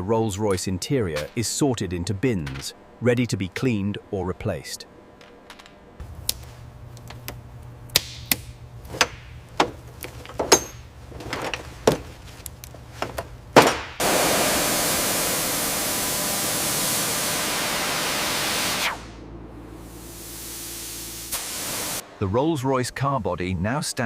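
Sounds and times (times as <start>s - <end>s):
metal parts clinking: 5.2s - 5.8s, 8.9s - 13.9s
high-pressure blast hiss: 14.0s - 19.2s, 19.8s - 22.0s.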